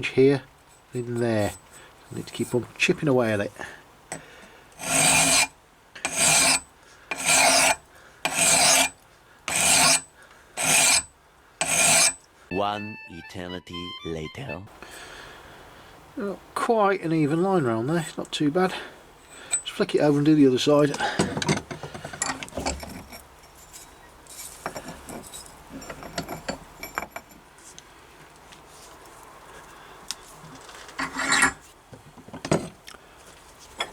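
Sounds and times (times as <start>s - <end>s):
file rasping on steel blade: 4.8s - 12.2s, 31.0s - 31.6s
light metallic clinks and knocks: 19.2s - 19.8s, 20.9s - 27.9s.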